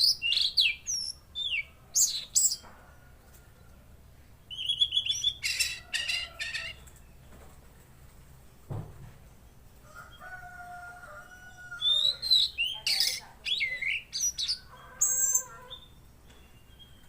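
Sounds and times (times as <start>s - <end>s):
bird singing whistled notes: 0.0s - 2.6s, 4.5s - 5.7s, 11.8s - 17.0s.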